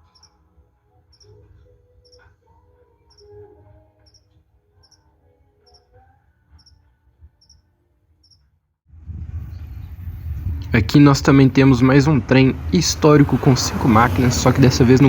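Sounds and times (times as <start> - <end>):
cricket chirping: 0.0 - 0.4, 3.1 - 3.4, 4.0 - 5.0, 7.4 - 7.6, 8.2 - 8.5
loud low rumble: 8.9 - 15.0.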